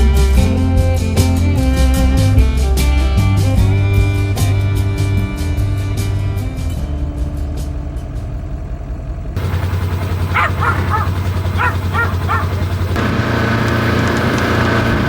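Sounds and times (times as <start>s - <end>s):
engine running at low speed: 0.0s - 15.0s
dog barking: 10.2s - 12.7s.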